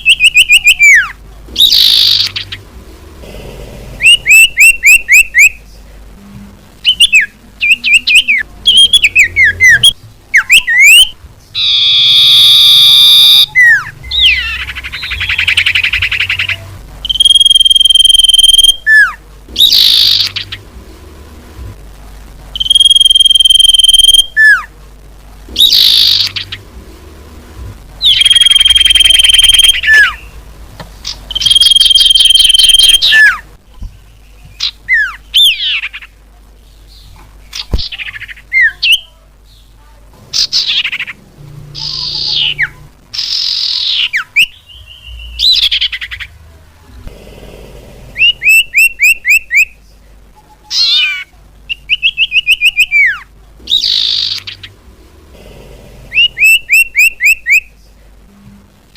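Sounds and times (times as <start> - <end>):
chattering bird trills: 0.0 - 2.7, 3.9 - 5.8, 6.8 - 20.7, 25.6 - 26.7, 28.0 - 30.4, 31.0 - 33.4, 36.9 - 46.4, 48.2 - 49.8, 50.7 - 54.8, 56.1 - 57.7
bird call whistles: 4.0 - 5.6, 6.9 - 14.4, 17.1 - 20.3, 22.6 - 24.6, 28.1 - 30.2, 31.4 - 33.4.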